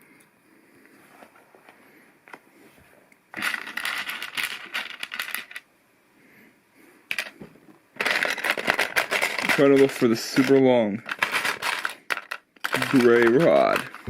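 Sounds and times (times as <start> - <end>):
plastic pieces clattering: 3.3 - 5.6, 8.0 - 14.0.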